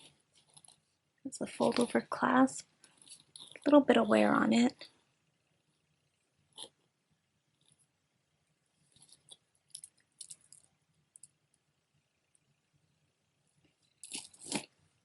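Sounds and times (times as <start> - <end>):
jewelry clicking and clinking: 2.8 - 3.7, 8.9 - 11.4.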